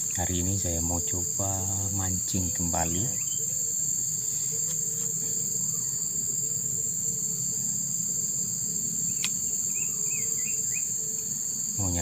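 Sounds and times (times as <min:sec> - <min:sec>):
insects chirring: 0:00.0 - 0:12.0
bird chirping: 0:02.3 - 0:03.7, 0:09.1 - 0:11.2.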